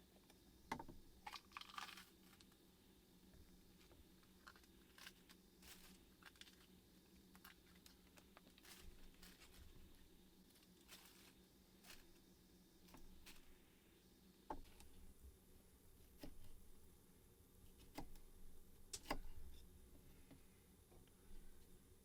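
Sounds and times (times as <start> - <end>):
faint small crackles and clicks: 0.2 - 2.6, 3.8 - 10.0.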